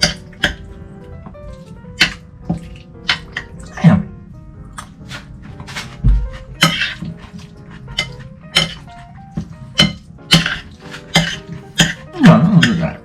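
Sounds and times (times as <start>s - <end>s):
background music: 0.0s - 13.0s
low thump: 6.0s - 6.4s
cutlery clinking against a dish: 6.6s - 8.9s, 9.8s - 12.9s.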